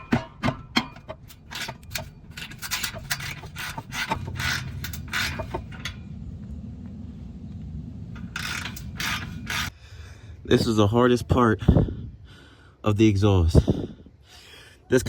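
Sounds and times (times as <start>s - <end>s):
tools scraping on exhaust: 0.0s - 6.2s, 8.1s - 9.8s
low muffled rumble: 4.6s - 12.6s.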